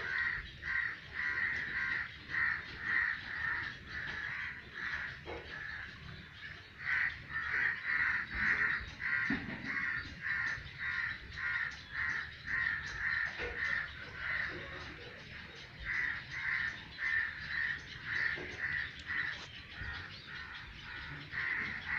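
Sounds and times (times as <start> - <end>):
bird calling: 0.0 - 21.9.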